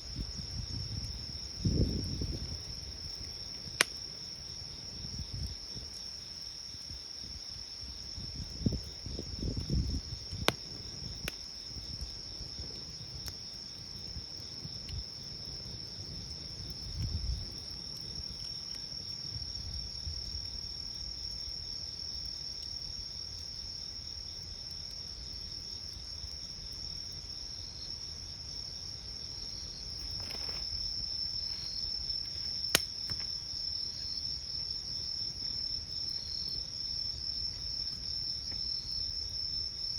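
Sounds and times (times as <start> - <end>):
night insects chirping: 0.0 - 39.9
campfire crackling pops: 0.3 - 7.0, 8.2 - 19.7, 28.0 - 34.1.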